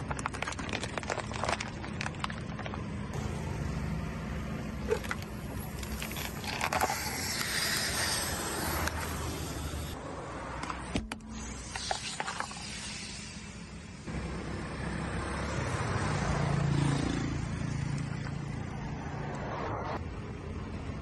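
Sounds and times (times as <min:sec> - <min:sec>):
plastic cracking under tyre: 0:00.0 - 0:02.9, 0:04.9 - 0:07.6.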